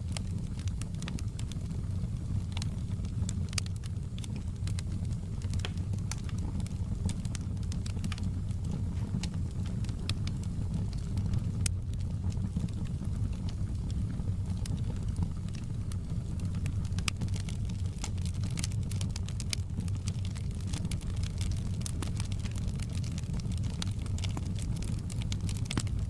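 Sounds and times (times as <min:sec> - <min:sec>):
campfire crackling and popping: 0:00.0 - 0:26.0
low fire rumble: 0:00.0 - 0:26.0.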